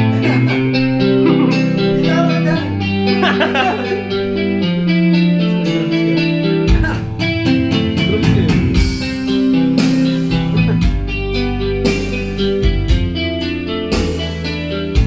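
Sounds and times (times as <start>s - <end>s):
band playing instrumental: 0.0s - 4.0s, 5.5s - 13.1s.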